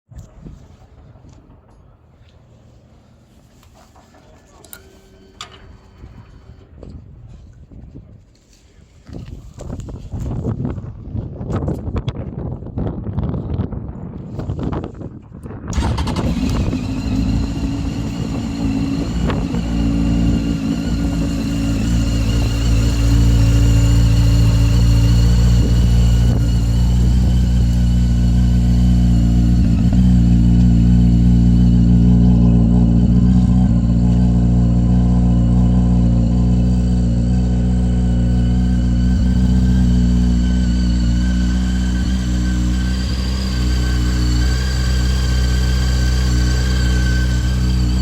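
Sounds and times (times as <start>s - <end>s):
motorcycle engine idling: 15.8s - 48.0s.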